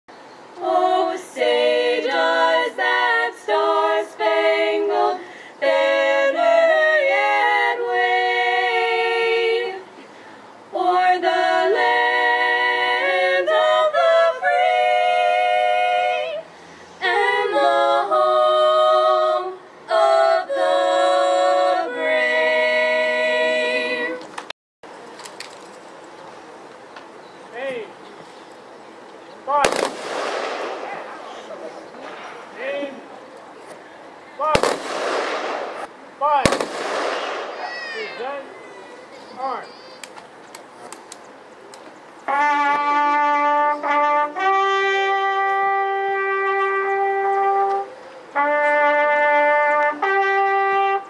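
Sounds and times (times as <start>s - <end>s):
vocal group singing in harmony: 0.6s - 24.5s.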